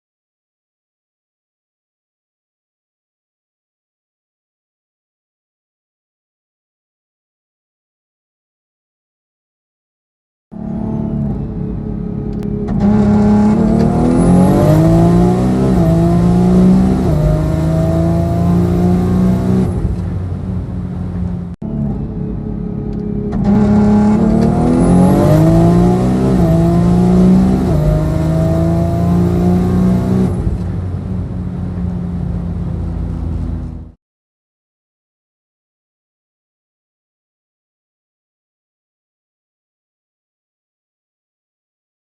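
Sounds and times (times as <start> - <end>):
car engine at full throttle: 10.5 - 34.0.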